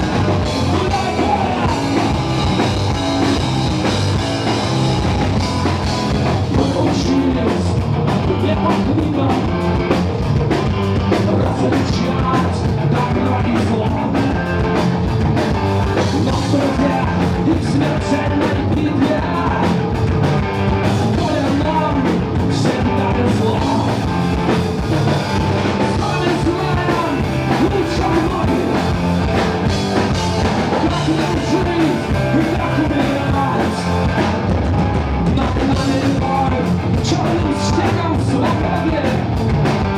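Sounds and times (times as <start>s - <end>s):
person singing: 0.0s - 9.8s, 11.0s - 14.8s, 15.9s - 19.8s, 21.0s - 29.2s, 30.0s - 39.4s
live rock band playing: 0.0s - 39.9s.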